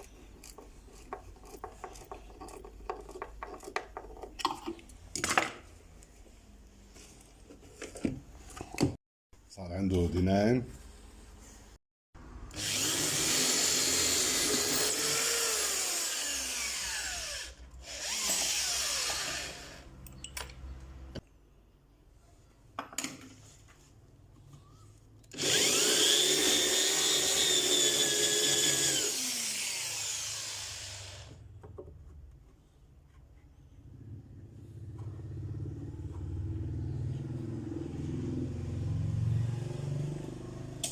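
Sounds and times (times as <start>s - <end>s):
electric drill into wood: 12.5s - 19.9s, 25.3s - 31.4s.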